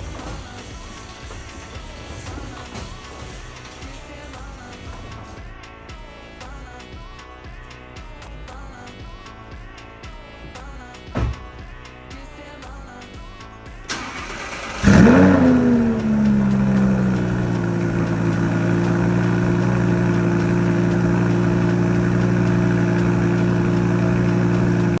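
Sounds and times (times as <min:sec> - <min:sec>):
car engine starting and idling: 0:13.9 - 0:25.0.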